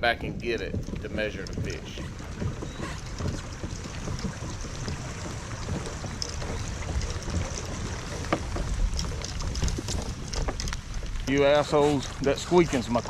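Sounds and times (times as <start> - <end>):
water slapping a kayak: 0.0 - 13.0
wind buffeting microphone: 0.0 - 13.0
rubber shoes squeaking: 0.4 - 13.0.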